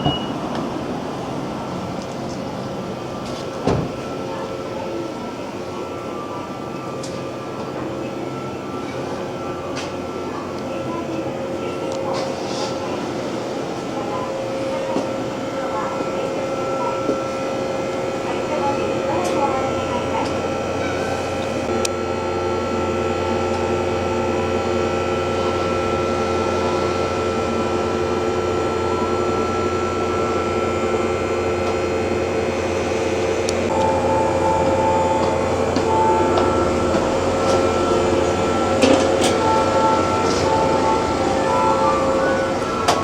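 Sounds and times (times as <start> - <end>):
electric train mechanical hum: 0.0 - 43.0
faint pulsing high tone: 33.7 - 43.0.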